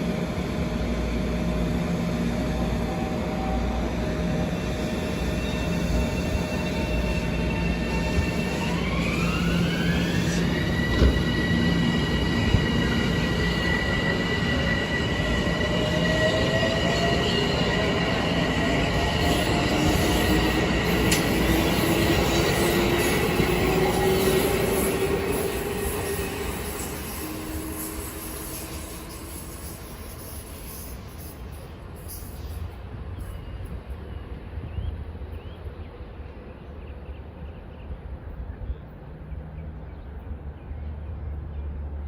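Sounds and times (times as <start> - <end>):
train wheels rumbling on rail: 0.0 - 40.5
high squealing wheels: 2.5 - 33.6.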